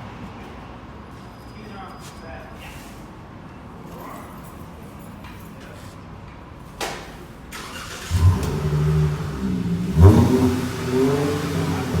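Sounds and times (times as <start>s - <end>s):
loud deep car exhaust: 7.8s - 12.0s.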